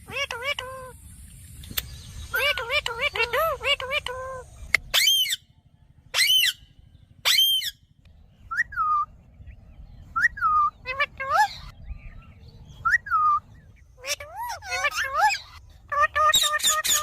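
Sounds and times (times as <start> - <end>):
parrot screeching: 7.2 - 7.8, 14.0 - 17.0.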